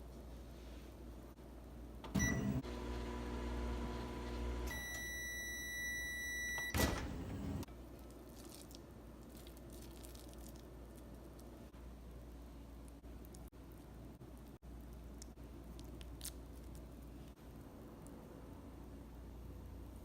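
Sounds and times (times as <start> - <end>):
microwave oven humming: 2.0 - 7.7
microwave short beep: 2.1 - 2.6, 4.0 - 7.6.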